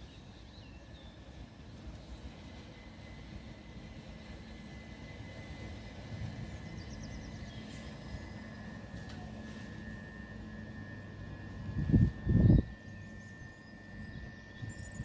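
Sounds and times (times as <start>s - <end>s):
electric train rumble: 0.0s - 15.0s
high whine: 3.2s - 15.0s.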